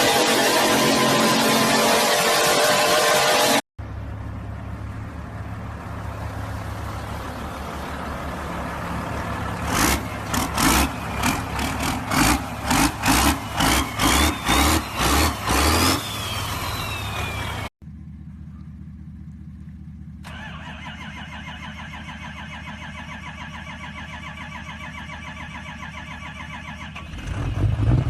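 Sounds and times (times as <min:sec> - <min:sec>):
truck engine idling and revving: 0:00.0 - 0:28.0
whistle rising in pitch: 0:13.1 - 0:17.7.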